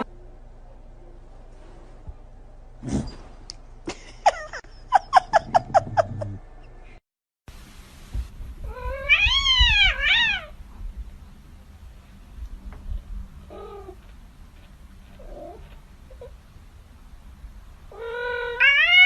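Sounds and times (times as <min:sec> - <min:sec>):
cat yowling: 0:08.7 - 0:10.5, 0:17.9 - 0:19.0.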